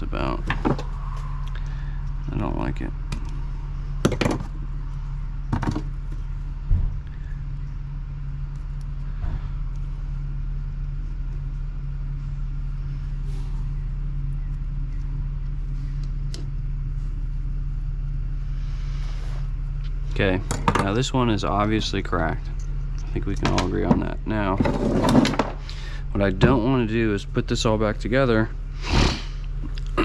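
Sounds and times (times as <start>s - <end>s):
low mechanical hum: 0.0s - 30.0s
knocks and clicks of small parts: 4.0s - 4.5s.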